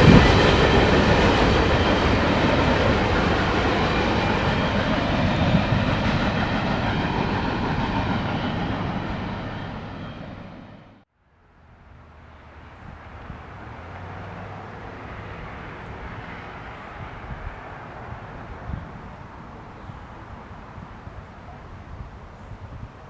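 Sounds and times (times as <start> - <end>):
railroad cars rolling on track: 0.0 - 11.0.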